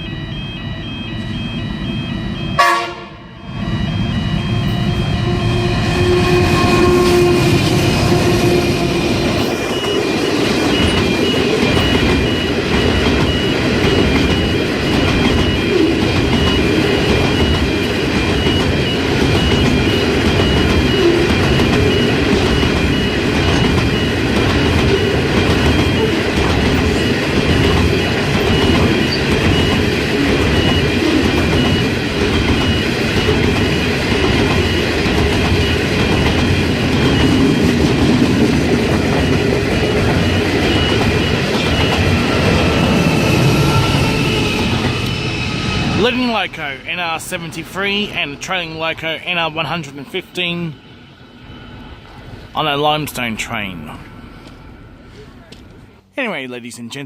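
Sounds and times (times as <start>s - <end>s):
locomotive engine tone: 0.0s - 55.9s
train wheels clattering: 6.6s - 45.4s.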